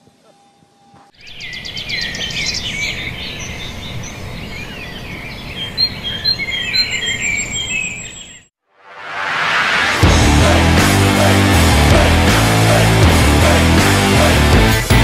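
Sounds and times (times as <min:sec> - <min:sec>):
birds chirping: 0:00.1 - 0:08.5.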